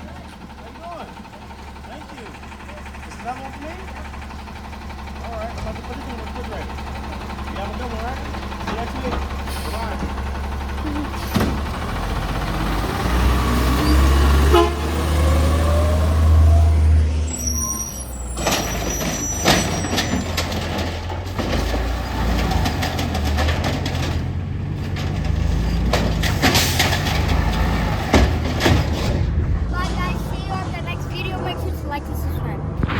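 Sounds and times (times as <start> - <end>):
garbage truck engine revving: 0.0 - 32.9
knocks and clatter: 18.4 - 30.2.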